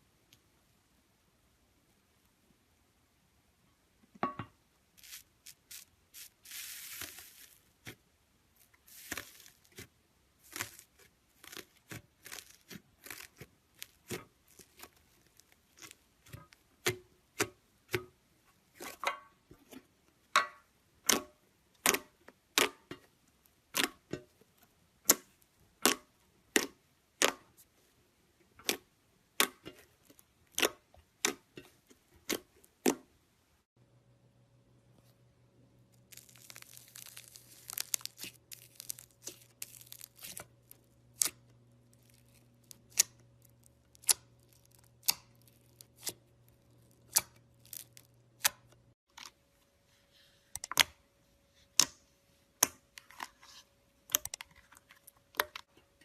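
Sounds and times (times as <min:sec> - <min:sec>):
crackly rustle: 0:36.0 - 0:40.5.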